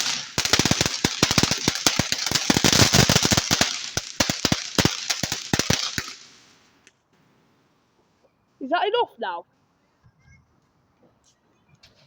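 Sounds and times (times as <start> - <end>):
crackling firework: 0.0 - 7.0.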